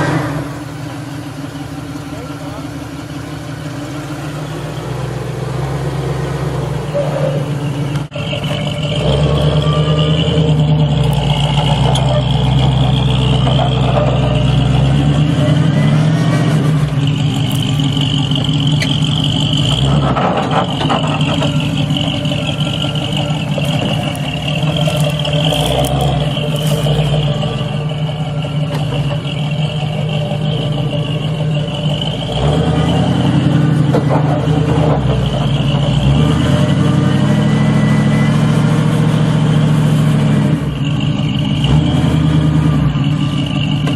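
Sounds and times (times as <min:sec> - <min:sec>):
off-road vehicle engine running: 0:00.0 - 0:43.9.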